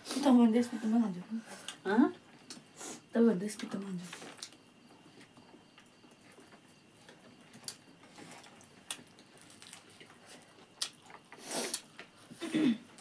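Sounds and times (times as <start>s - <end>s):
people chewing food: 1.4s - 3.0s, 4.0s - 13.0s
lip smacks and mouth clicks: 10.8s - 11.0s.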